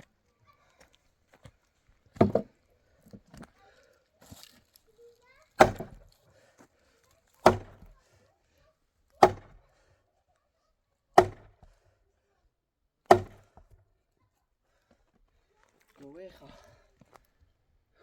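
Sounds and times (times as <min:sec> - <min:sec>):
heavy chopping strikes: 0:02.2 - 0:02.5, 0:05.6 - 0:06.1, 0:07.4 - 0:08.0, 0:09.2 - 0:09.6, 0:11.2 - 0:11.6, 0:13.1 - 0:13.6.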